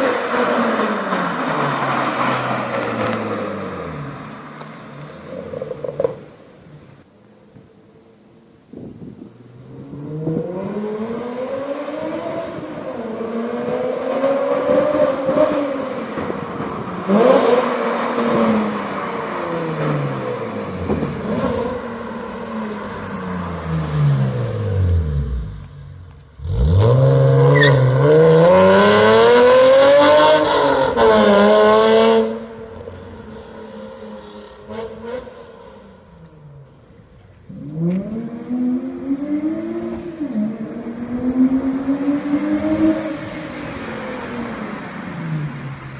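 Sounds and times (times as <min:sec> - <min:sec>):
car engine revving and accelerating: 0:09.4 - 0:36.8, 0:37.5 - 0:45.9.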